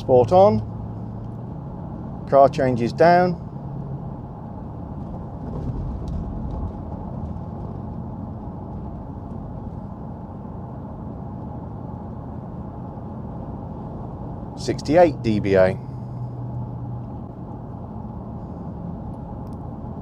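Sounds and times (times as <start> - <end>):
car engine droning: 0.0 - 20.0
tyre and road noise: 0.0 - 20.0.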